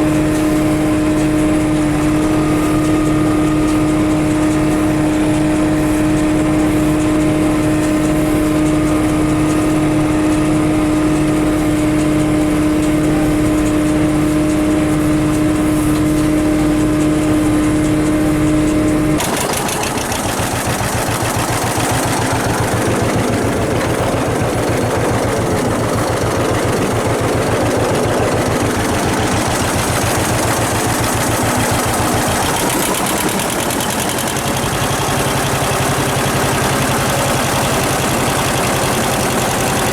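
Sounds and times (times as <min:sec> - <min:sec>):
rough machine clatter: 0:00.0 - 0:39.9
tractor engine running: 0:00.0 - 0:39.9.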